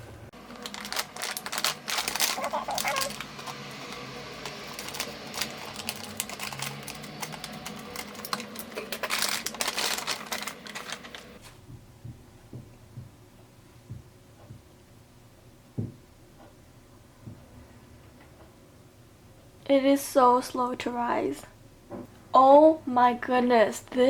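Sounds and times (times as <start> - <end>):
plastic packaging crinkling: 0.4 - 11.4.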